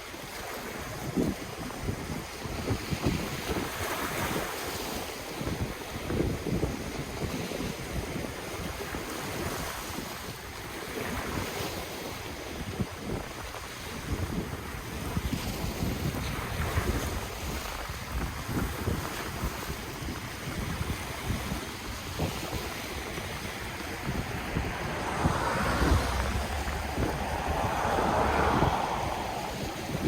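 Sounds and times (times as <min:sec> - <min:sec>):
ocean waves breaking on shore: 0:08.8 - 0:30.0
wind gusting over microphone: 0:12.6 - 0:30.0.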